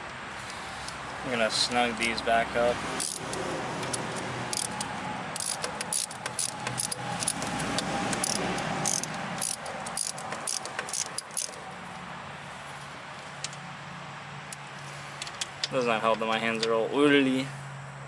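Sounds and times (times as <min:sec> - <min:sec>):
metallic jangle of tools: 0:03.0 - 0:03.3, 0:03.9 - 0:11.7
hand ratchet clicking: 0:03.0 - 0:11.6.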